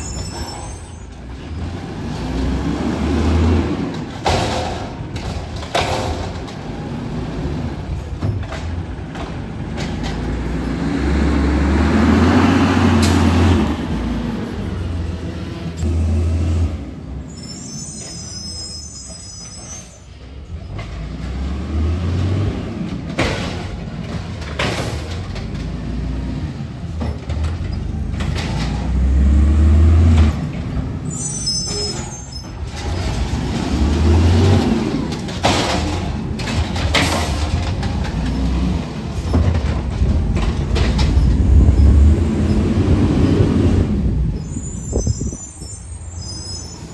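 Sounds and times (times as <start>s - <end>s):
diesel engine revving: 1.3s - 4.2s, 9.4s - 17.2s, 20.9s - 23.2s, 27.8s - 31.1s, 32.7s - 44.4s
high-pitched squeals: 17.2s - 20.1s, 44.3s - 46.9s.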